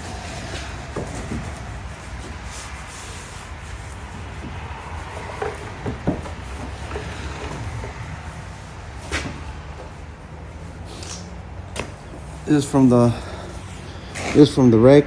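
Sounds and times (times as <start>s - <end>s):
light knocks and clunks: 4.0s - 8.4s, 9.0s - 10.0s, 11.7s - 12.4s.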